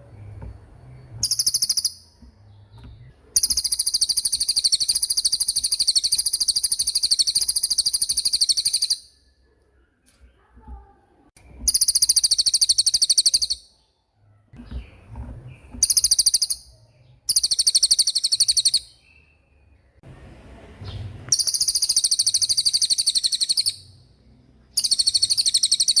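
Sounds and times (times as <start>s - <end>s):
bird high-pitched trills: 1.2s - 2.2s, 3.4s - 9.2s, 11.6s - 13.7s, 15.8s - 19.1s, 21.3s - 24.0s, 24.8s - 26.0s.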